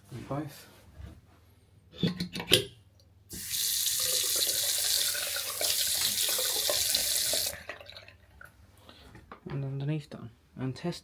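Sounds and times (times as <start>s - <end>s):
tap water running into basin: 3.3s - 8.5s.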